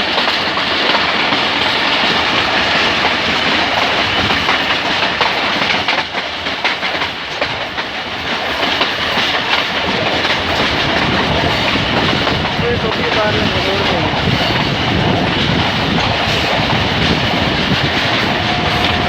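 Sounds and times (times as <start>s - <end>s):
train wheels clicking over rail joints: 0.0s - 19.0s.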